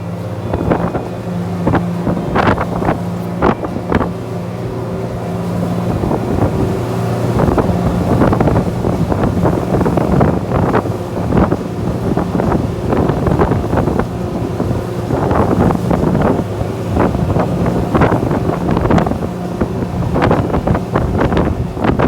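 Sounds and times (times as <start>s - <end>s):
boat engine running: 0.0s - 22.0s
wind buffeting microphone: 0.0s - 22.0s.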